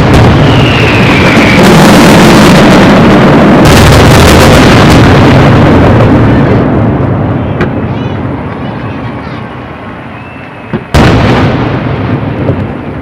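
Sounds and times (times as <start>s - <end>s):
sharp firework bang: 0.0s - 6.9s, 10.6s - 12.8s
fireworks bursts and crackle: 0.0s - 13.0s.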